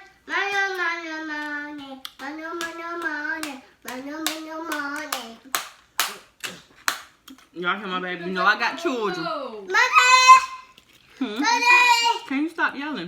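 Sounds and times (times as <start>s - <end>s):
child singing drawn-out notes: 0.0s - 5.5s, 9.7s - 10.7s
hand claps: 2.1s - 7.4s.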